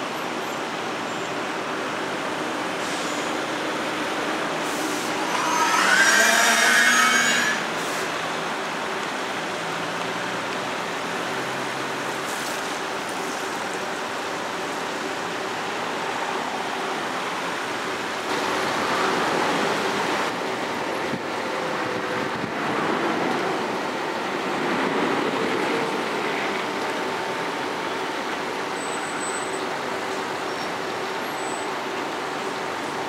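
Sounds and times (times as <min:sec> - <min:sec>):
train wheels rumbling on rail: 0:16.3 - 0:28.8.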